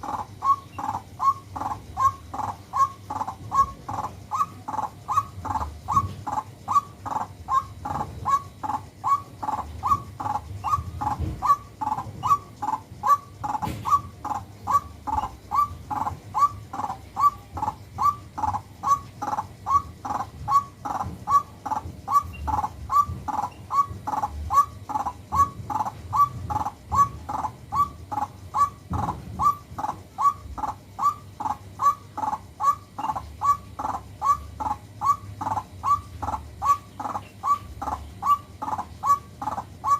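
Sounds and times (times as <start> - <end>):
bird calling harshly: 0.0 - 39.9.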